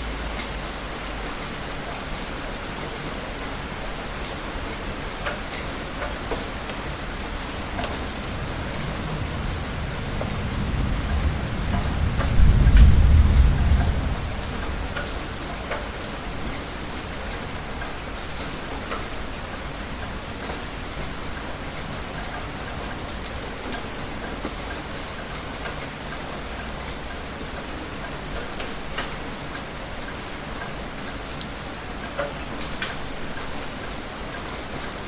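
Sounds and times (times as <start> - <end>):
heavy rain: 0.0 - 35.0
thunder rumble: 6.9 - 17.3.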